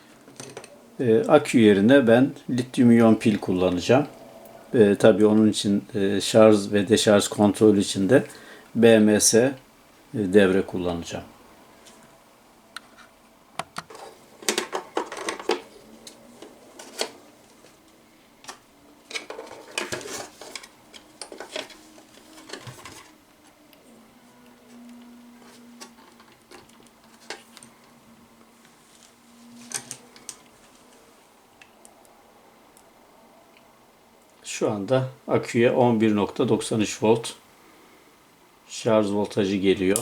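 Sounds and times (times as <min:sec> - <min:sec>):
faint steady hum: 0:00.0 - 0:40.0
small hard parts clattering: 0:00.1 - 0:00.8, 0:13.7 - 0:23.6, 0:25.4 - 0:28.0, 0:29.6 - 0:30.5.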